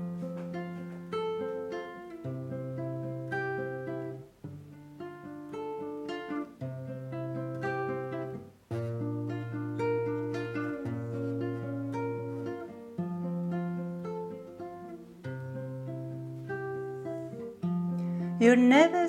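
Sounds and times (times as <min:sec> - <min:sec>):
acoustic guitar picked and strummed: 0:00.0 - 0:19.0.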